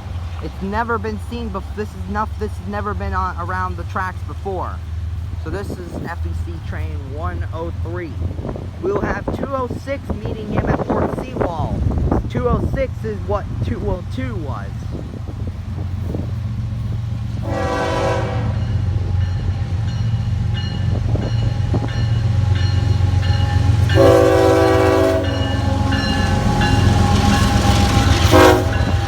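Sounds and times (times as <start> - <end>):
diesel locomotive engines rumbling: 0.0 - 29.0
locomotive air horn blasts: 17.4 - 18.9, 22.4 - 29.0.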